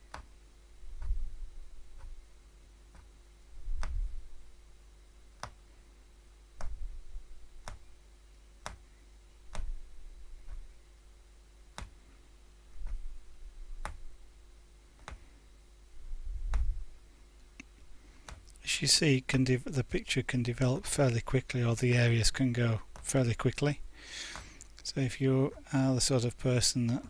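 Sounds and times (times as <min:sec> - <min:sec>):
punch needle clicking through fabric: 0:02.0 - 0:02.2, 0:02.9 - 0:03.1, 0:03.8 - 0:04.1, 0:05.4 - 0:05.6, 0:07.6 - 0:07.9, 0:08.6 - 0:08.8, 0:09.5 - 0:09.8, 0:10.4 - 0:10.7, 0:11.7 - 0:12.0, 0:13.8 - 0:14.1, 0:15.0 - 0:15.2
soft low thud: 0:16.2 - 0:17.0.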